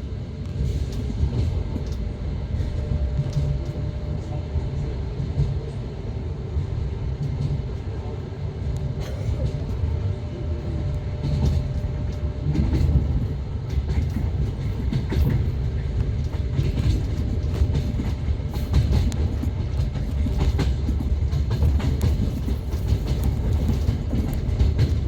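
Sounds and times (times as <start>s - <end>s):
train carriage rumbling: 0.0s - 25.0s
wheels clicking on rails: 11.2s - 25.0s.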